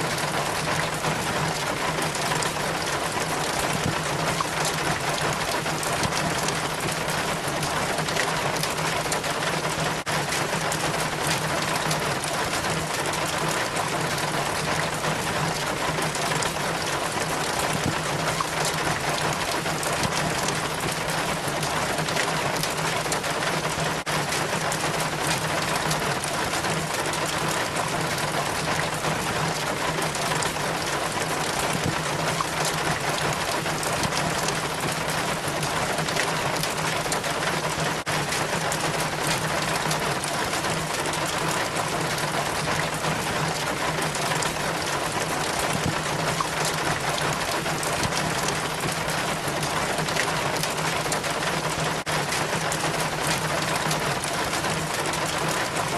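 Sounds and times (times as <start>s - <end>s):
rain water trickling down a chain: 0.0s - 55.9s.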